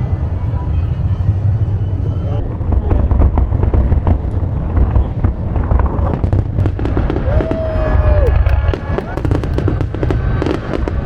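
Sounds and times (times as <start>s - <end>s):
fireworks booming and crackling: 0.0s - 11.0s
firework whistle: 6.7s - 11.0s.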